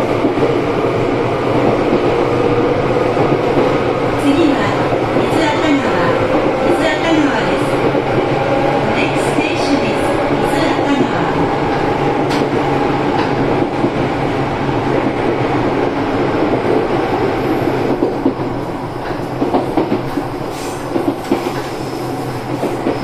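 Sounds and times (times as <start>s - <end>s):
electric train hum: 0.0s - 23.0s
train wheels rumbling on rail: 0.0s - 23.0s
rail-joint clacks: 3.2s - 14.0s, 17.8s - 23.0s.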